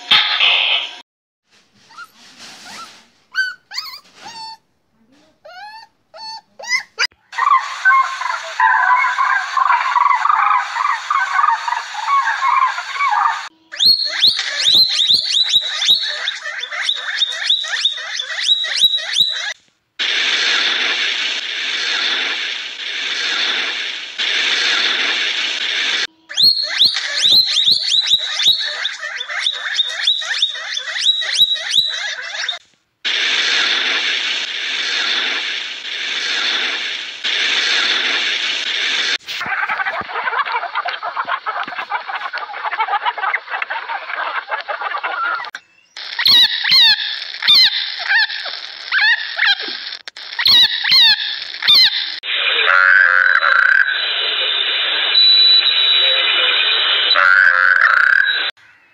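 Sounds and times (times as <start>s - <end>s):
coypu squeaking and crunching: 1.9s - 4.6s
rabbit squeaking: 1.9s - 4.6s, 5.4s - 7.1s, 26.2s - 32.6s
steady hiss: 20.0s - 26.1s, 33.1s - 39.6s
frog rattling croak: 52.6s - 54.0s, 57.2s - 58.3s.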